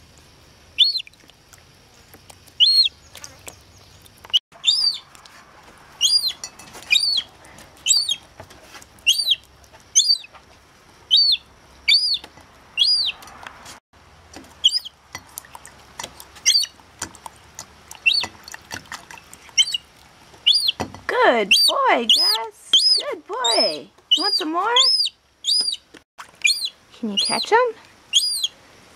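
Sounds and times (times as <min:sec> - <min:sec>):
gull chick whistled calls: 0:00.8 - 0:01.1, 0:02.6 - 0:02.9, 0:04.6 - 0:05.1, 0:06.0 - 0:08.2, 0:09.1 - 0:09.4, 0:10.0 - 0:10.3, 0:11.1 - 0:13.2, 0:14.6 - 0:14.9, 0:18.0 - 0:18.3, 0:19.6 - 0:19.8, 0:20.4 - 0:20.8, 0:21.5 - 0:27.5, 0:28.1 - 0:28.6.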